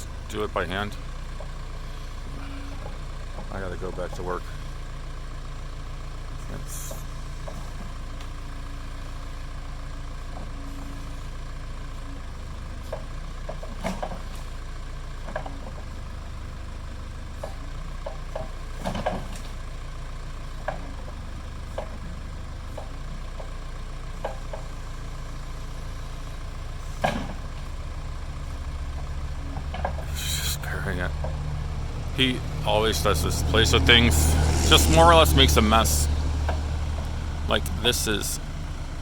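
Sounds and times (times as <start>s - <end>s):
backhoe engine running: 0.0s - 39.0s
wood knocking and cracking: 17.4s - 19.6s, 26.8s - 27.8s.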